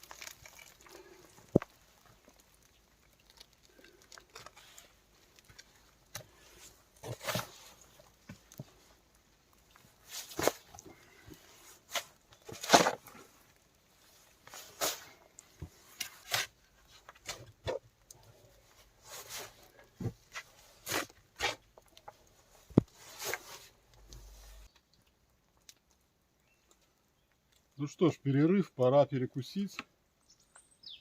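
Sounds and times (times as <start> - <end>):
knocks and scrapes: 3.4 - 9.0, 10.0 - 13.4, 14.0 - 24.7.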